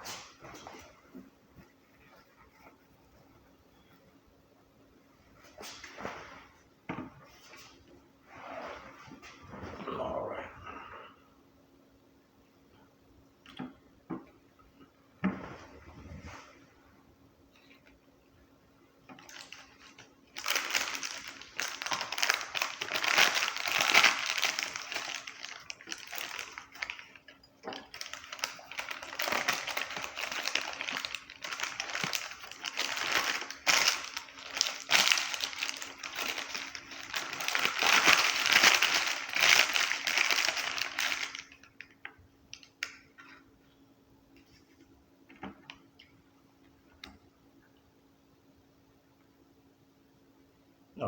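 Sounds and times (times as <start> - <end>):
packaging crinkling and rustling: 19.1 - 43.0.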